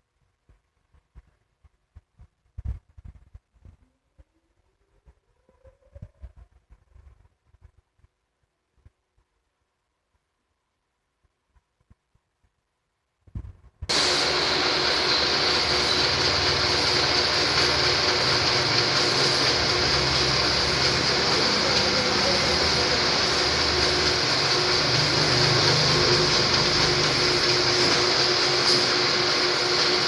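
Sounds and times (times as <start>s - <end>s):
boring machine running: 13.9s - 30.0s
high machine whine: 13.9s - 30.0s.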